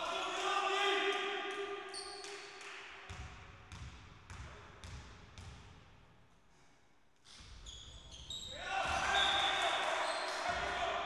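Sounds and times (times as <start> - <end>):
basketball bouncing on hard floor: 3.1 - 5.7.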